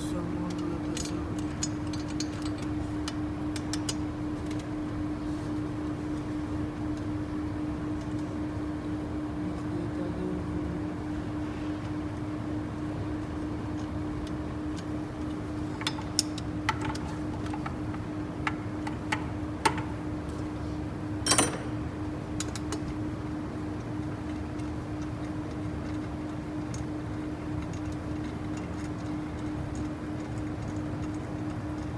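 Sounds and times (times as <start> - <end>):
steady hum: 0.0 - 22.5
tools tapping on metal: 21.2 - 21.9
metal clatter: 21.3 - 21.9.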